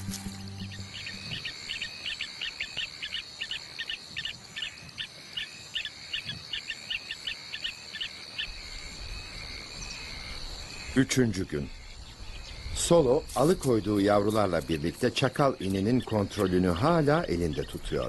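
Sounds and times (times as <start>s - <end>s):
bird chirping rapidly: 0.0s - 8.6s.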